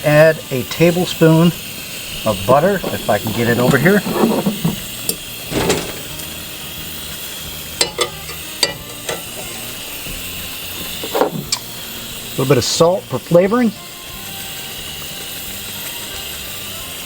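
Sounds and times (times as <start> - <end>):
food sizzling in a skillet: 0.0 - 17.0
spoon scraping and knocking pan: 2.4 - 6.4, 7.8 - 9.6.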